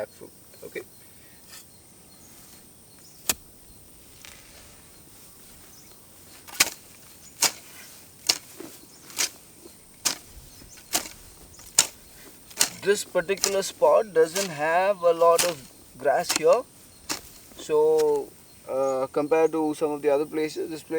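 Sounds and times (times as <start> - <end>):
hand tool striking soil: 3.1 - 4.6, 6.3 - 18.4.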